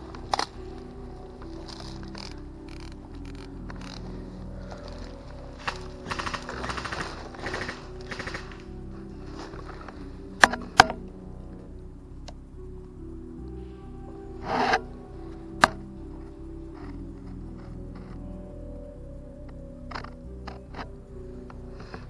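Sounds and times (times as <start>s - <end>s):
background music: 0.0s - 22.0s
sharp cracks: 5.6s - 8.7s
rapid airsoft gunfire: 6.1s - 8.6s.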